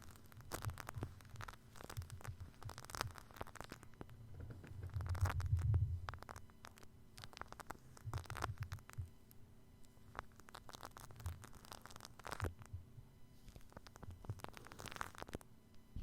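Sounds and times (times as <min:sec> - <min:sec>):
shaving cream crackling: 0:00.0 - 0:12.7, 0:13.4 - 0:15.5
soft low thumps: 0:04.0 - 0:06.4
dull low rumble: 0:04.2 - 0:06.3.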